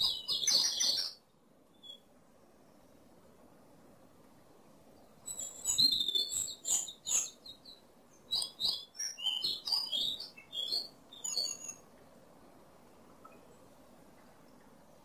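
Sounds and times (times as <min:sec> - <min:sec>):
small bird tweeting: 0:00.0 - 0:02.1, 0:05.0 - 0:11.9.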